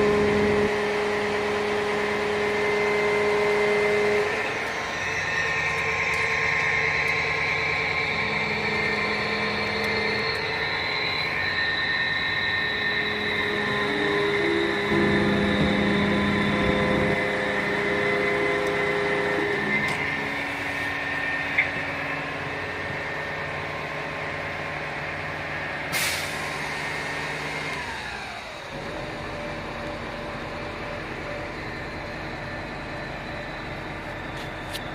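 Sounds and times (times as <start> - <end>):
fire truck engine drone: 0.0 - 34.9.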